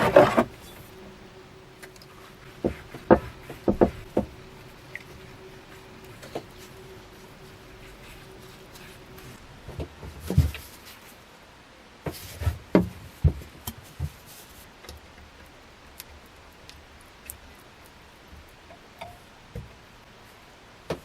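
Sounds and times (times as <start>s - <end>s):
hard objects knocking and clicking: 2.6s - 4.4s.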